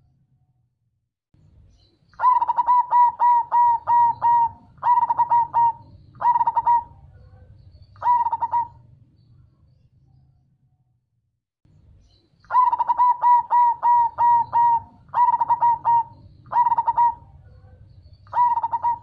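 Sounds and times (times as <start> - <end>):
dove cooing: 2.2 - 9.0, 12.5 - 19.0.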